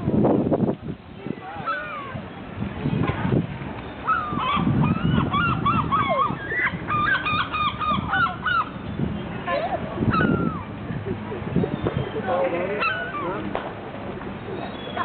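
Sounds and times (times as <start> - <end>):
flock of birds calling: 1.4 - 2.4, 3.8 - 13.5, 14.4 - 15.0.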